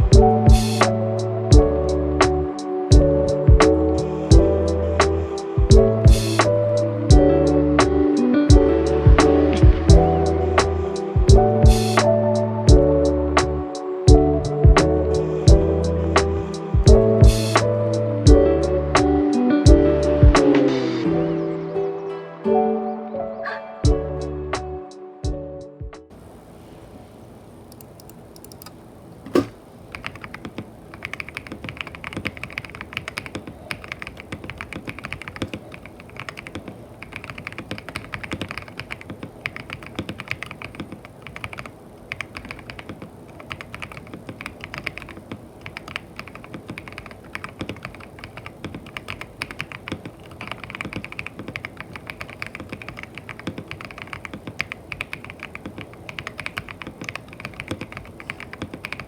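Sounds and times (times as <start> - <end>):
mechanical keyboard key clacks: 27.7 - 59.0.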